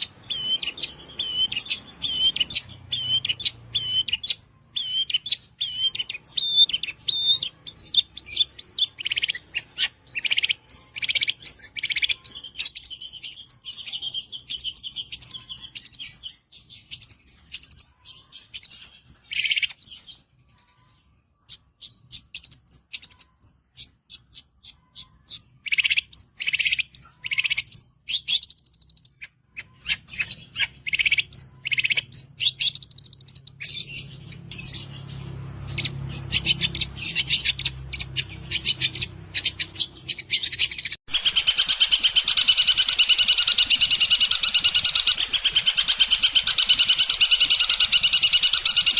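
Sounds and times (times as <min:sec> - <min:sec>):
bird singing chirps and trills: 0:00.0 - 0:48.9.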